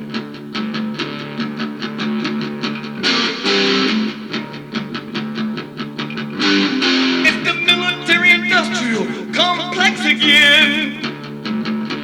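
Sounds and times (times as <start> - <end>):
strummed guitar: 0.0 - 12.0
guitar riff: 6.0 - 11.5.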